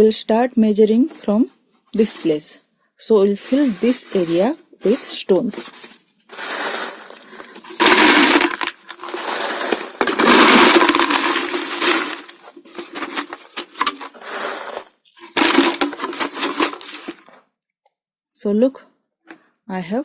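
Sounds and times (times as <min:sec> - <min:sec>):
stones rattling in a bottle: 0:03.4 - 0:17.4.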